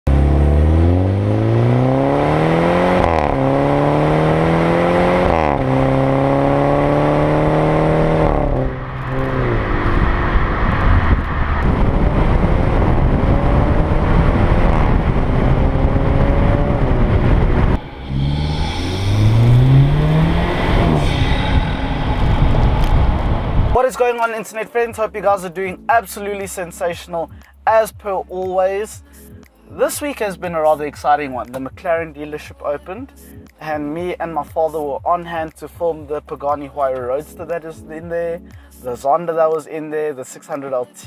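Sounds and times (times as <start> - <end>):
car engine accelerating hard: 0.1 - 23.8.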